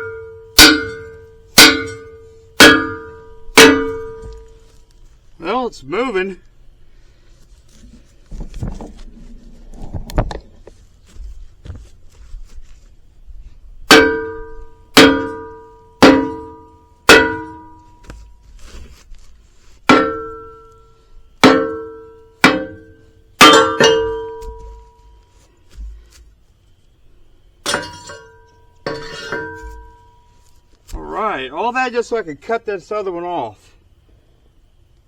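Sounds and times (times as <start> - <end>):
hammer blows on steel: 0.0 - 4.6, 13.9 - 18.2, 19.9 - 25.2.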